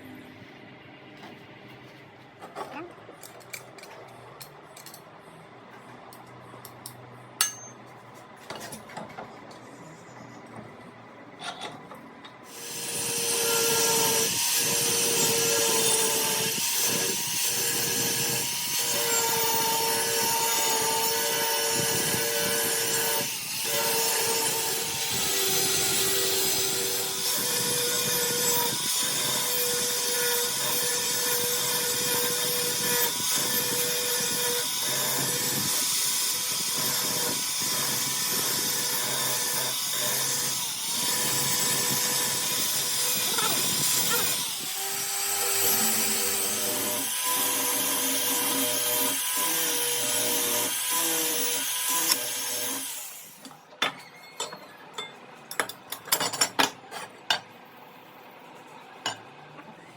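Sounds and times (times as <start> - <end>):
power grinder on steel: 12.5 - 53.5.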